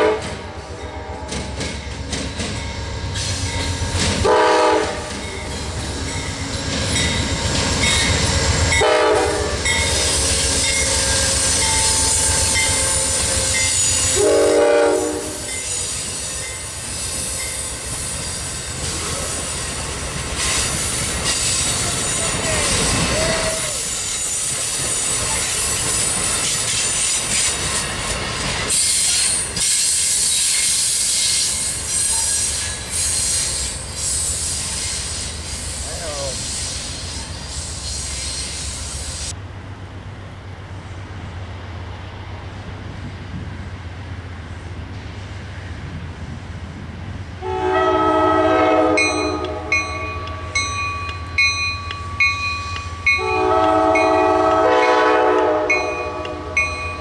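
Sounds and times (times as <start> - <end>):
locomotive horn blasts: 0.0 - 1.6, 4.2 - 5.2, 8.7 - 15.7, 47.4 - 50.6, 53.1 - 56.8
train wheel clatter: 1.2 - 9.0.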